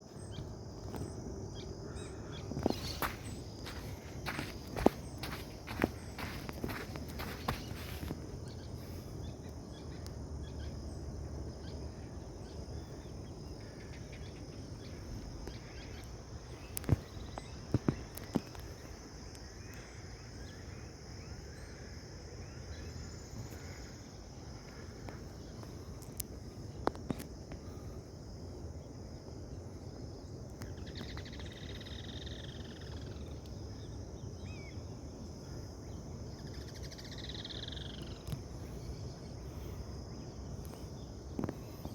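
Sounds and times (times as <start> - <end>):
high insect drone: 0.0 - 41.9
falling bird calls: 0.1 - 10.1.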